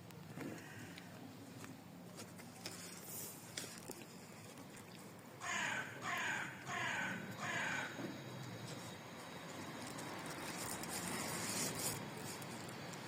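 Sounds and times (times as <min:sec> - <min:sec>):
crow cawing: 0:00.5 - 0:01.0, 0:05.4 - 0:08.0.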